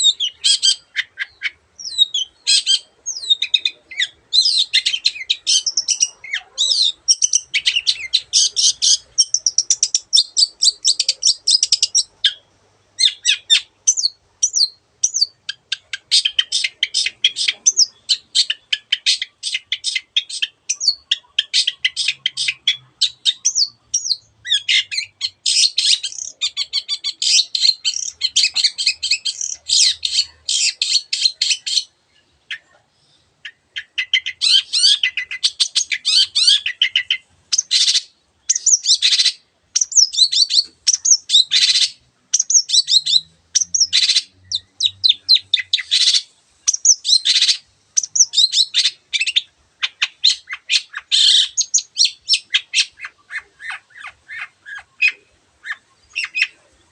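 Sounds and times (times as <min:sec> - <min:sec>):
shrike chattering song: 0:00.0 - 0:31.9, 0:33.5 - 0:56.8.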